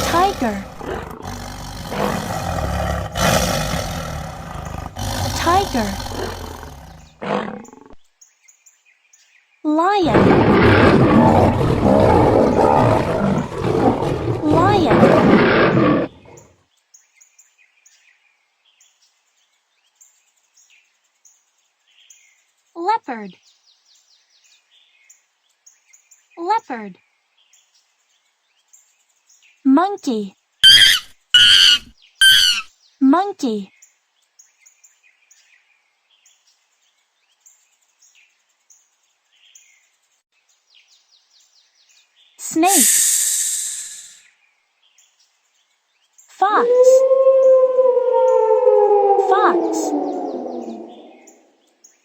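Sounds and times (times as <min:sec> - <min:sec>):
faint bird chirps: 0:30.1 - 0:35.7, 0:48.0 - 0:52.0
high-pitched chirping: 0:30.6 - 0:32.7
low hiss: 0:42.4 - 0:44.4.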